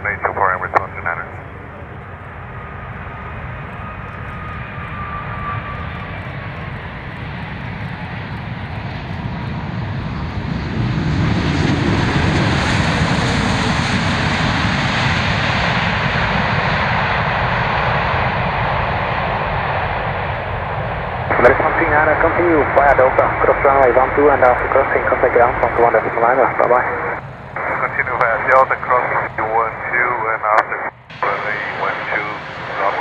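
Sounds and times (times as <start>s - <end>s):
jet engines roaring: 0.0s - 33.0s
faint falling whine: 21.3s - 33.0s.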